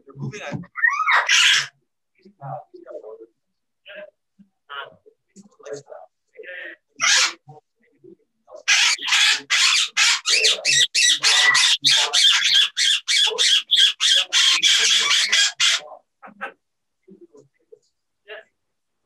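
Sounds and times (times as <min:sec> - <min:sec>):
parrot squawking: 0:00.7 - 0:01.8, 0:07.0 - 0:07.4, 0:08.6 - 0:16.6.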